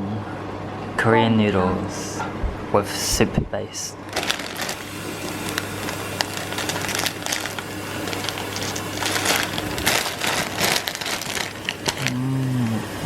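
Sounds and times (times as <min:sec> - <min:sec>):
plastic packaging crinkling: 0:04.1 - 0:12.5.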